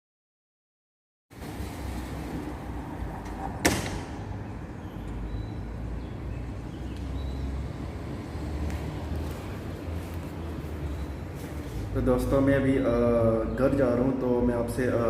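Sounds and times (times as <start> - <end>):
sharp knock: 3.6 - 4.2.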